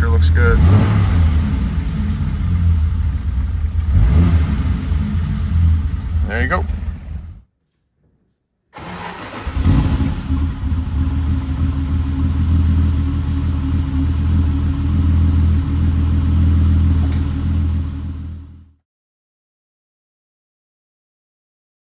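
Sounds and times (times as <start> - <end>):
car engine idling: 0.0 - 7.4, 8.8 - 18.7.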